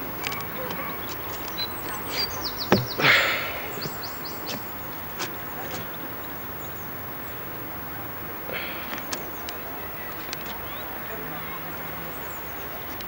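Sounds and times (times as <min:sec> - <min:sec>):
steady outdoor hiss: 0:00.0 - 0:13.0
high bird chirps: 0:00.4 - 0:04.6.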